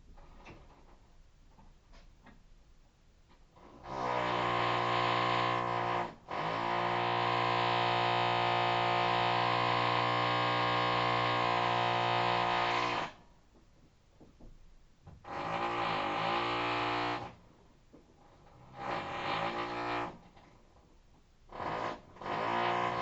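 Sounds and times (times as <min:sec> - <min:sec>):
hammer drill buzzing: 0:03.9 - 0:13.2, 0:15.2 - 0:17.3, 0:21.5 - 0:23.0.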